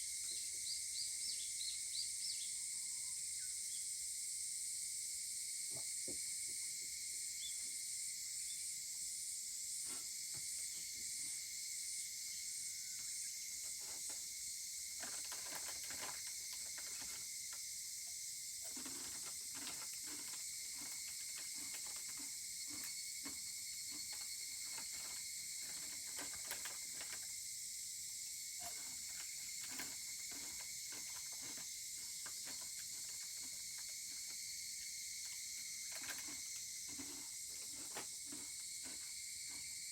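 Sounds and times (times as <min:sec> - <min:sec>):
pulsing cicada call: 0:00.0 - 0:15.0
insects droning: 0:00.0 - 0:39.9.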